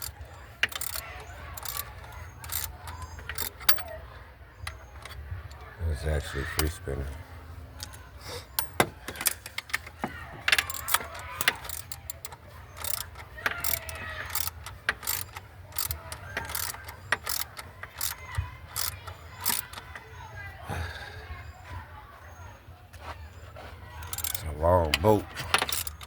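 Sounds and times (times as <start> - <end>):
ratchet ticking: 0.0 - 4.0, 8.6 - 9.9, 10.5 - 20.1, 24.0 - 24.4, 25.5 - 26.0
hand tools clicking and clanking: 0.0 - 20.4, 23.6 - 26.0.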